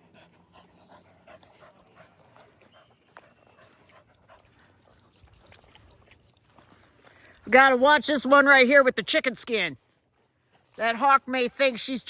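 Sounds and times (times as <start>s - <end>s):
dogs panting: 0.0s - 7.2s.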